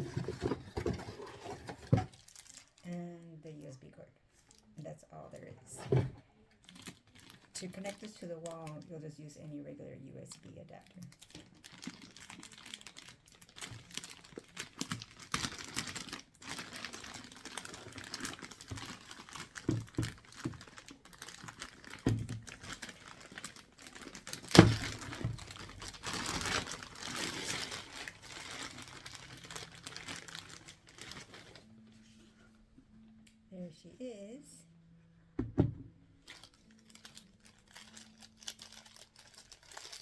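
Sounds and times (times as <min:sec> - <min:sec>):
plastic packaging crinkling: 0:00.0 - 0:03.0, 0:06.6 - 0:08.8, 0:10.4 - 0:31.8, 0:36.2 - 0:40.0.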